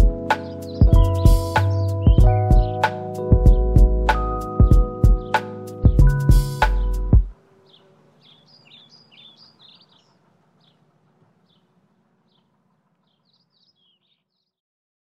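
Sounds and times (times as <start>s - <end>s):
background music: 0.0s - 7.4s
faint birds chirping: 0.0s - 14.6s.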